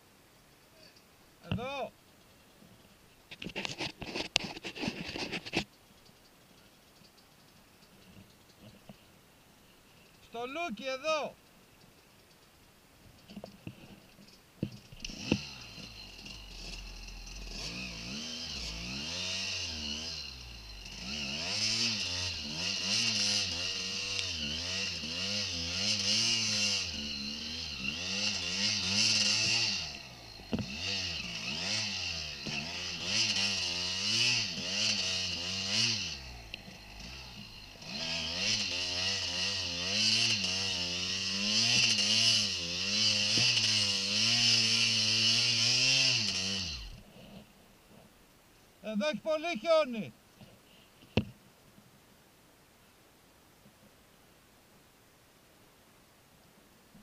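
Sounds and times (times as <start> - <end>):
dirt bike engine revving: 14.7 - 47.2.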